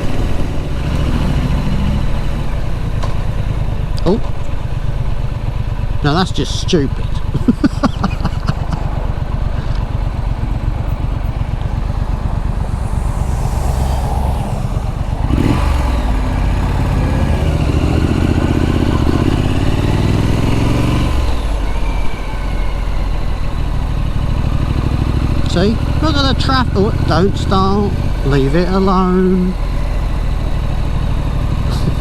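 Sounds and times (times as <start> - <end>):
motorcycle engine running: 0.0 - 32.0
wind noise: 10.7 - 17.9.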